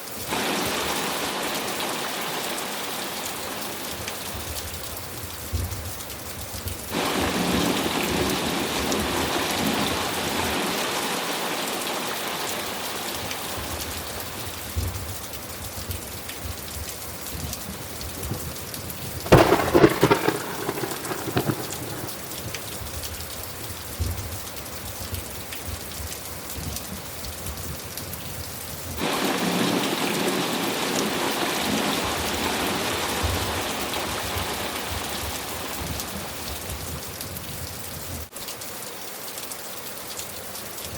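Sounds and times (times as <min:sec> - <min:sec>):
heavy rain: 0:00.0 - 0:40.9
thunderclap: 0:19.2 - 0:23.0.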